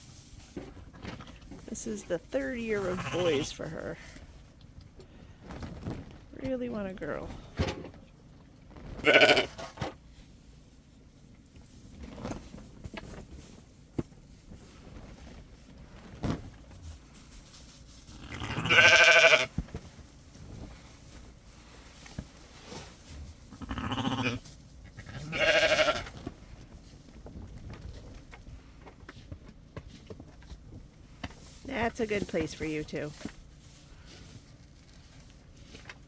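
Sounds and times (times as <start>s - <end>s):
sheep bleating: 9.0s - 9.6s, 18.2s - 19.5s, 23.6s - 24.4s, 25.1s - 26.1s.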